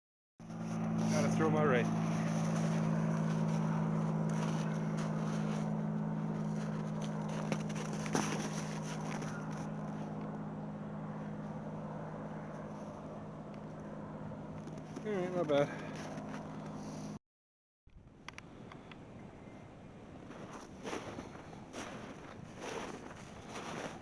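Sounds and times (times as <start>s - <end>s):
low machine hum: 0.4s - 17.2s.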